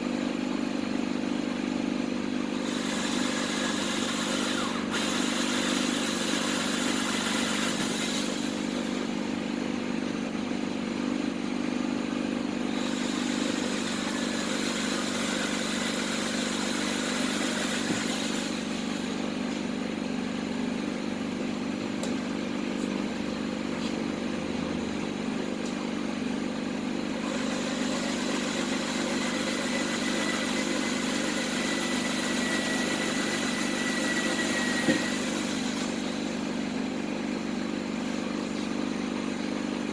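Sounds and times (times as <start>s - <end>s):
electric power tool cutting metal: 2.6s - 9.1s, 12.7s - 19.3s, 27.2s - 36.7s.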